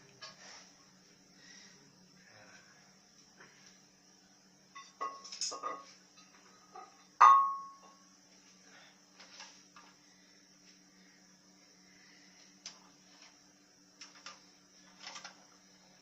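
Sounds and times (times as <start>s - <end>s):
sharp ringing clink: 7.2s - 7.9s.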